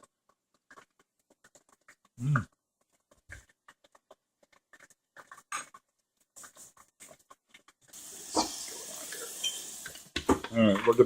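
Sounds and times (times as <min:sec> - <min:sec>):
person chewing: 0:00.0 - 0:09.3
oil sizzling in deep fryer: 0:07.9 - 0:11.0.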